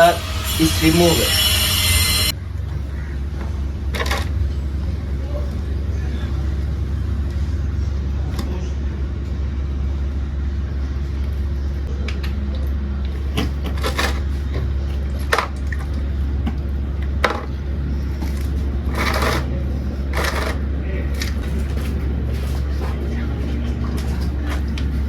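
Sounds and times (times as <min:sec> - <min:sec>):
steady low hum: 0:00.0 - 0:25.0
scraping and rustling: 0:17.4 - 0:25.0.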